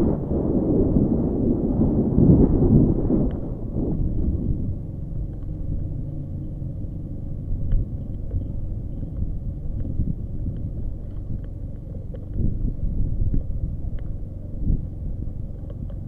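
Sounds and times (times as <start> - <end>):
motorcycle engine idling: 4.0 - 16.0
faint engine ticks: 4.6 - 16.0.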